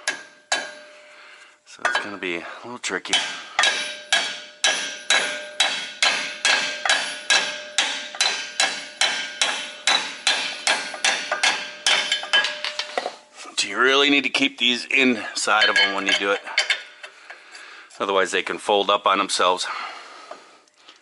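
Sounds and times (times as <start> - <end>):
hammer striking metal ringing: 0.0 - 1.1, 3.1 - 13.0, 15.4 - 16.9.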